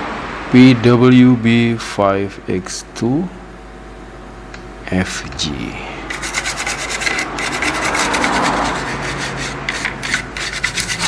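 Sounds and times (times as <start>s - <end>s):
rapid scratchy rubbing: 6.1s - 11.0s.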